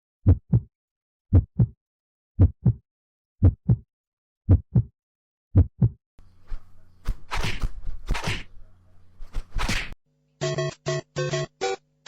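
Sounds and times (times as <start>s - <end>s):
heartbeat double thumps: 0.2s - 0.7s, 1.3s - 1.8s, 2.4s - 2.8s, 3.4s - 3.9s, 4.5s - 4.9s, 5.5s - 6.0s.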